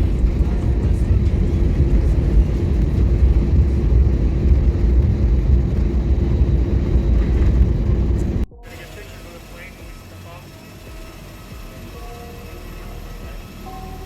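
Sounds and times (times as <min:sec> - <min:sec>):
jet engines and rushing air: 0:00.0 - 0:10.5.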